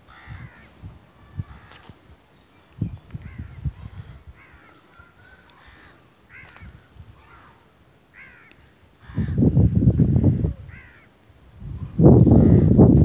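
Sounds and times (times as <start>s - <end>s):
bird giving harsh calls: 3.2s - 9.4s.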